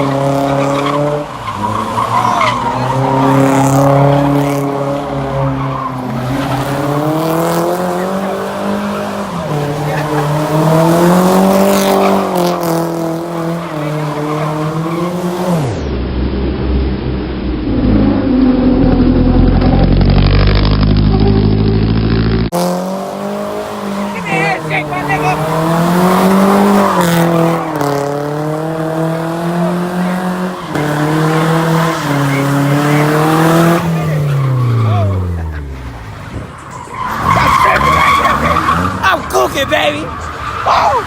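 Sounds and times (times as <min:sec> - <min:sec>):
tyres squealing: 0:00.0 - 0:04.5, 0:30.2 - 0:41.0
car engine at high revs: 0:00.0 - 0:41.0.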